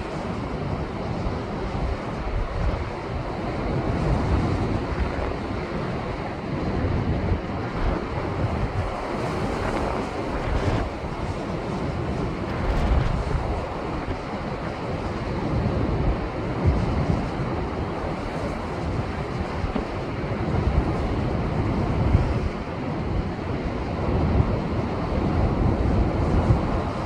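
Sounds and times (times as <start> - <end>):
wind buffeting microphone: 0.0 - 27.0
waves breaking over rocks: 7.8 - 23.6.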